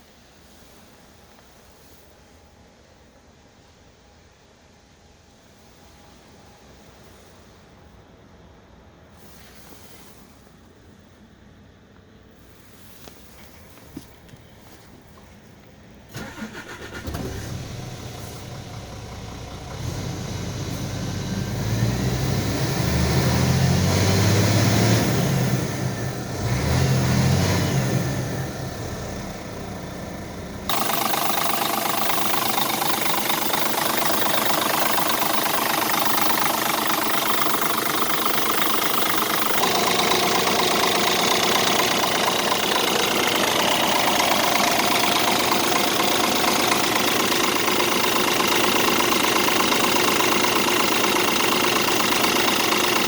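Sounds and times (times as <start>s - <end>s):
diesel truck engine idling and revving: 12.9s - 53.0s.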